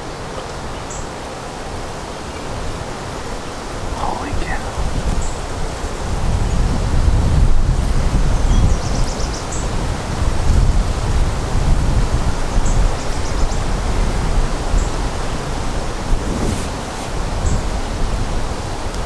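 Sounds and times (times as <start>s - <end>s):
wind buffeting microphone: 3.8s - 19.0s.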